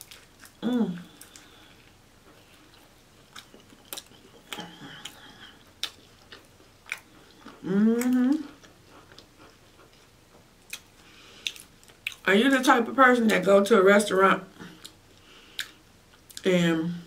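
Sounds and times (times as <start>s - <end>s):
chewing crispy food: 0.0s - 12.3s, 14.6s - 16.5s
person humming: 0.6s - 1.2s, 7.5s - 8.6s.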